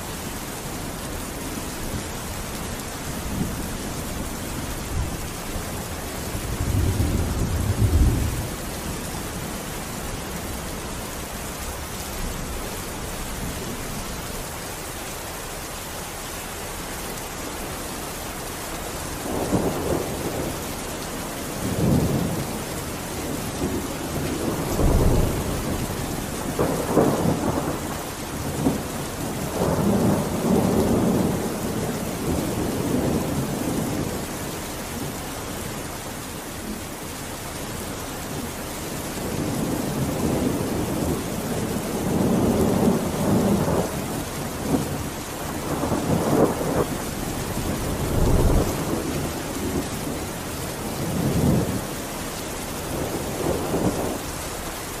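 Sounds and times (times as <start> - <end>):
thunder rumbling: 0.0 - 10.7, 19.2 - 34.2, 38.3 - 52.0, 52.6 - 55.0
steady rain hiss: 0.0 - 55.0.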